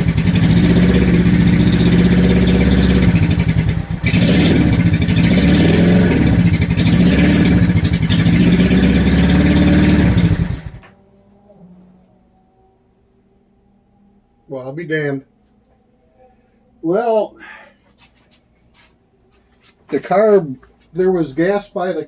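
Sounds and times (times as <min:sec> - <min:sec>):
motorcycle engine revving: 0:00.0 - 0:10.9.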